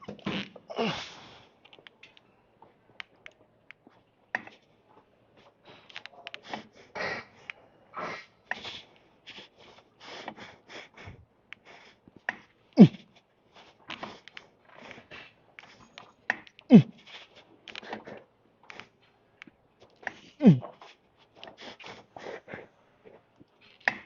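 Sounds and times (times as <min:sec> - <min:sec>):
man breathing hard: 0:05.6 - 0:12.1, 0:20.1 - 0:20.8
man grunting: 0:12.8 - 0:13.0, 0:16.7 - 0:16.9, 0:20.4 - 0:20.7.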